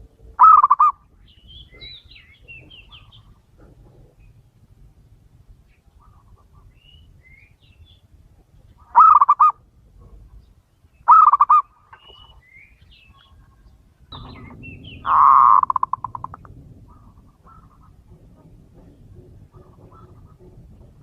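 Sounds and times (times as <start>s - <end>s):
dove cooing: 0.0s - 1.0s, 8.8s - 10.2s, 11.1s - 11.7s, 14.1s - 21.0s
small birds chirping: 0.4s - 4.6s, 5.5s - 18.1s
rough noise: 13.9s - 21.0s.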